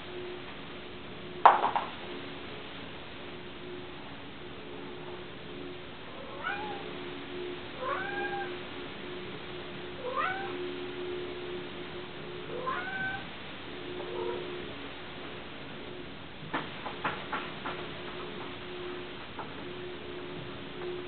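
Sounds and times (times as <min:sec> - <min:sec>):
cat meowing: 0:06.3 - 0:06.8, 0:07.8 - 0:08.6, 0:10.0 - 0:10.6, 0:12.5 - 0:13.3.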